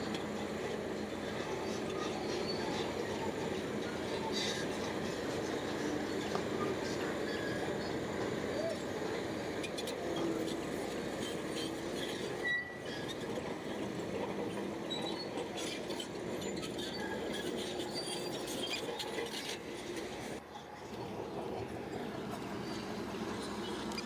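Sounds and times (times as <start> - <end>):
bulldozer engine running: 0.0 - 24.0
short track squeaks: 1.2 - 20.3.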